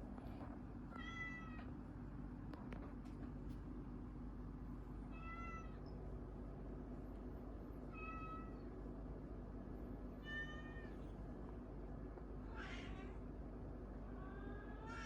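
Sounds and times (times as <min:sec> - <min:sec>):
steady low hum: 0:00.0 - 0:14.9
cat meowing: 0:12.5 - 0:13.2, 0:14.3 - 0:15.0.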